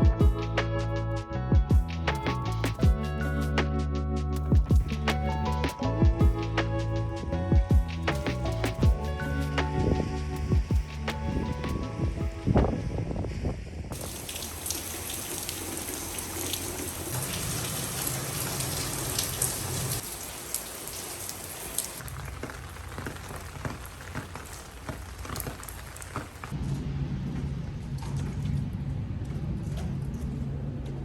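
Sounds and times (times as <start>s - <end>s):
raindrops ticking on a surface: 13.9s - 26.6s
steady rain falling: 13.9s - 26.6s.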